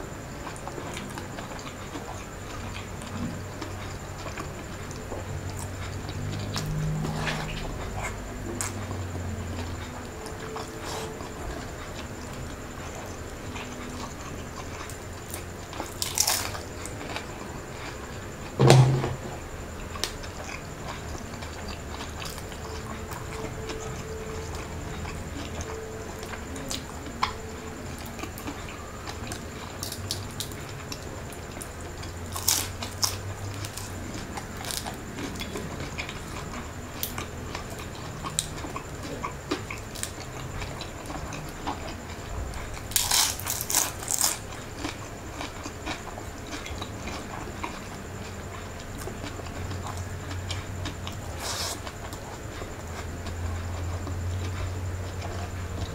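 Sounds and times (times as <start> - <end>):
faint steady hum: 0.0 - 55.9
person chewing food: 0.0 - 55.9
crisp crunches from biting: 42.9 - 45.5.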